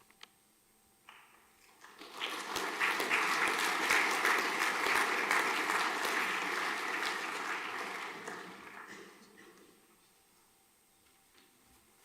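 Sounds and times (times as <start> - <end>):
audience clapping: 1.6 - 9.8.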